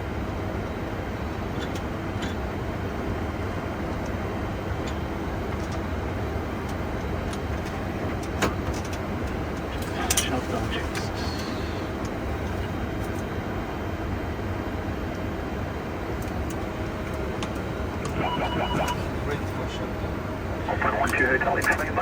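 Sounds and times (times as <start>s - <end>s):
aircraft engines idling: 0.0s - 22.0s
faint steady hum: 9.3s - 22.0s
cockpit drone and hiss: 9.7s - 12.1s, 18.0s - 22.0s.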